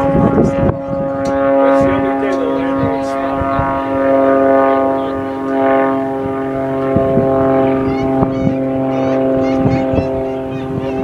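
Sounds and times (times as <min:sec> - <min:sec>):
propeller airplane engine droning: 0:00.0 - 0:11.0.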